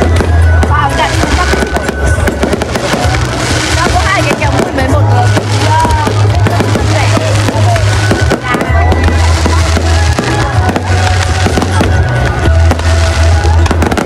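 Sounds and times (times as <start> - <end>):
fireworks bangs and crackles: 0.0 - 14.0
loud music with heavy bass: 0.0 - 14.0.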